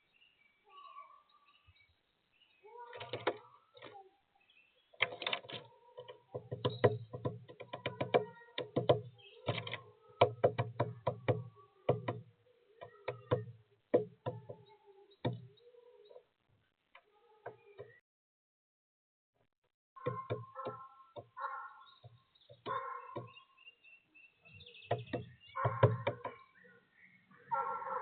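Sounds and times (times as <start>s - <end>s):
woodpecker pecking seeds: 5.0s - 12.2s, 24.6s - 26.6s.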